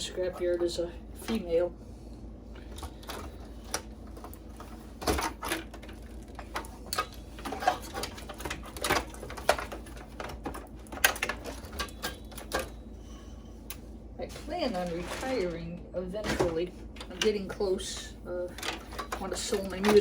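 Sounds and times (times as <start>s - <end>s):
computer parts clicking and clattering: 2.6s - 12.8s, 18.6s - 20.0s.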